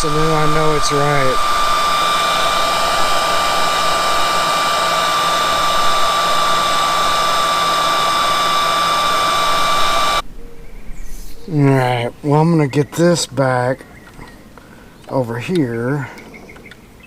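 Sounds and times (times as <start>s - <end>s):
heat gun whining: 0.0s - 10.2s.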